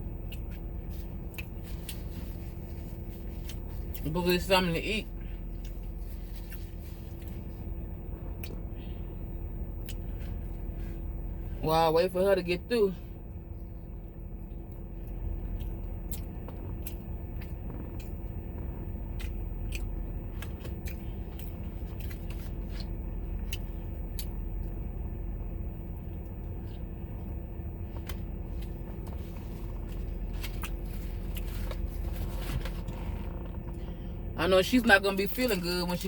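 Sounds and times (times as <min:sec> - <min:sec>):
steady low hum: 0:00.0 - 0:36.0
person chewing crunchy food: 0:00.2 - 0:04.2, 0:05.2 - 0:08.7, 0:13.9 - 0:34.2.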